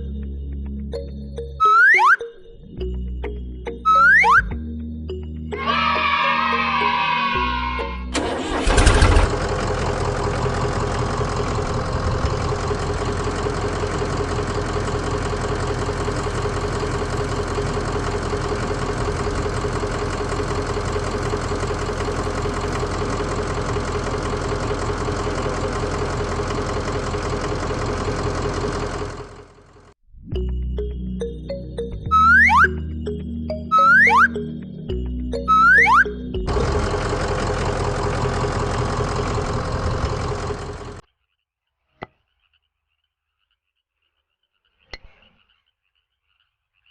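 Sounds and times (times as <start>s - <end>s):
motor humming: 8.2s - 29.8s, 36.5s - 41.0s.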